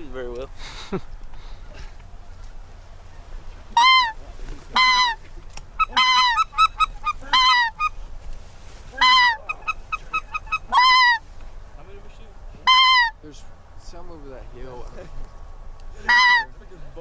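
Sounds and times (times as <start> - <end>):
goose call honks: 3.7 - 8.0, 8.9 - 11.2, 12.6 - 13.2, 16.0 - 16.6
goose call clucks: 3.8 - 8.0, 8.9 - 11.2, 12.6 - 13.2, 16.0 - 16.6.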